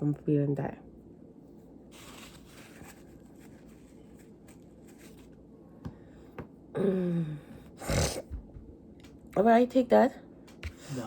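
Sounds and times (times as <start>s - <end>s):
faint rustling and handling: 1.4s - 5.6s.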